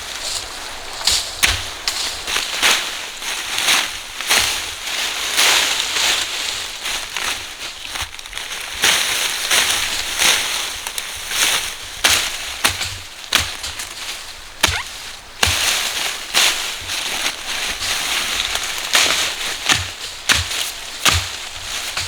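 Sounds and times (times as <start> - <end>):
scraping and rustling: 0.2 - 22.0
sharp knocks: 14.6 - 15.7.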